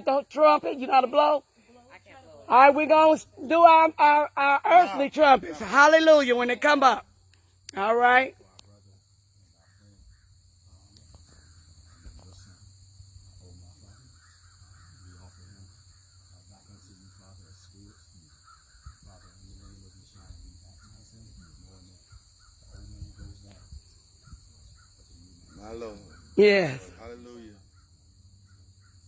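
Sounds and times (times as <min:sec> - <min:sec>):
insect drone: 0:00.0 - 0:29.0
crows cawing in the distance: 0:14.0 - 0:16.3, 0:17.9 - 0:22.7.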